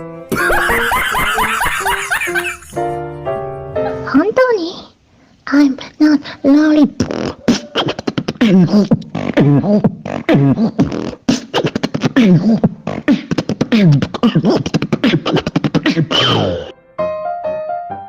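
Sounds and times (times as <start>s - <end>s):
high-pitched voice chattering: 5.5s - 16.1s.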